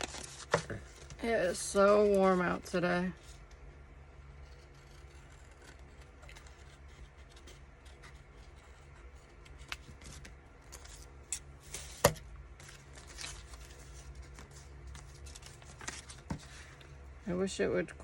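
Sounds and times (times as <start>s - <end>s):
papers shuffling: 0.0s - 2.6s, 9.2s - 16.8s
steady low hum: 0.0s - 18.0s.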